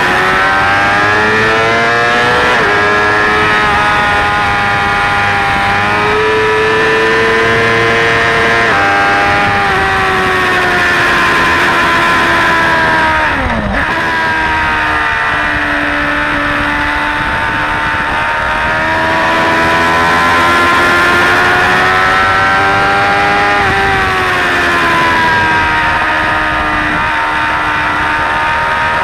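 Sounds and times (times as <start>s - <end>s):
motorcycle engine revving: 0.0s - 29.0s
wind rush: 0.0s - 29.0s.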